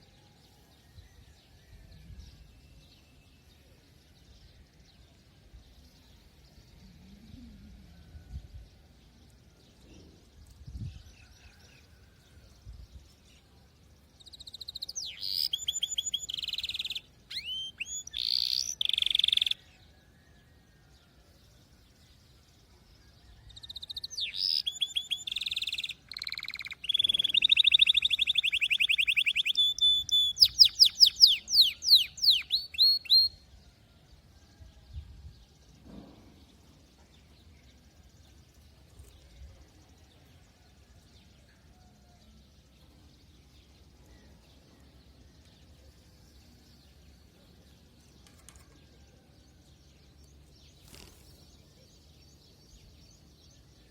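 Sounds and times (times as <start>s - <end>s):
canary singing: 14.2s - 19.6s, 23.5s - 33.4s.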